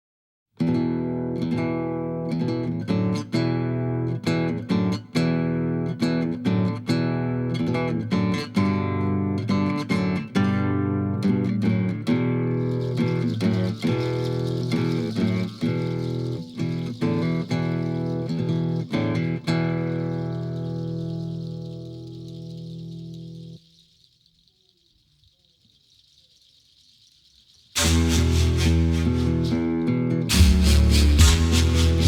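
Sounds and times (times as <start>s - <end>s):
acoustic guitar strumming: 1.1s - 23.6s, 27.8s - 32.0s
steady hiss: 12.6s - 32.0s.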